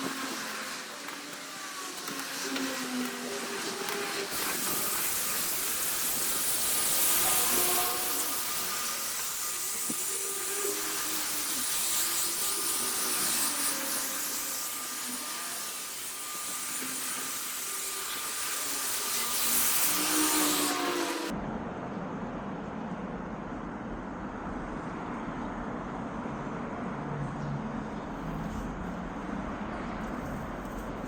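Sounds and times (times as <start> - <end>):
machine spraying hiss: 0.0 - 14.0.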